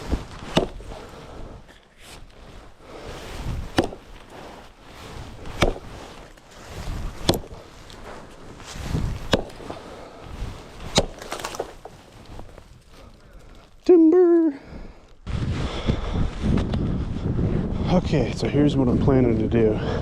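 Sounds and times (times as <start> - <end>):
rustle of axe swing: 0.0 - 1.1, 2.0 - 12.5
axe chopping dry wood: 0.1 - 1.1, 3.6 - 4.4, 5.3 - 8.0, 8.9 - 9.9, 10.7 - 11.9.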